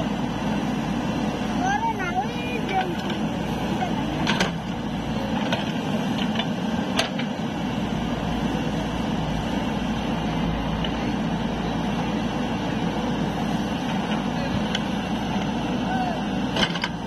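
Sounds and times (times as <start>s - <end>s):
low mechanical running noise: 0.0s - 17.0s.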